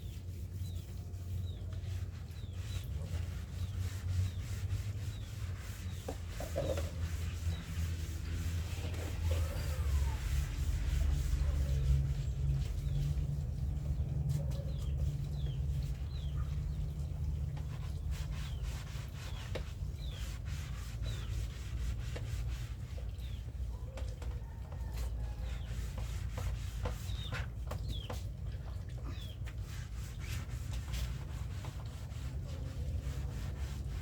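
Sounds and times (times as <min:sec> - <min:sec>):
scrubbing noise: 0:00.0 - 0:16.0, 0:29.3 - 0:34.0
small birds chirping: 0:00.0 - 0:34.0.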